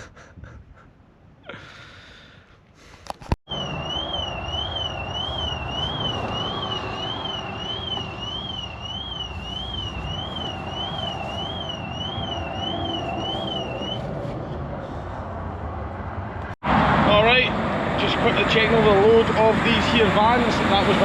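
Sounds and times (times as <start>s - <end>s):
heavy wind noise: 0.1s - 1.0s, 3.1s - 21.0s
warbling van alarm siren: 3.5s - 14.4s.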